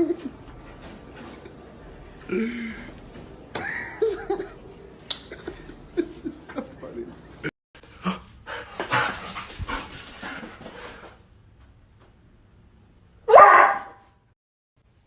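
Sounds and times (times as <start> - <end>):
dog barking: 13.3 - 14.0.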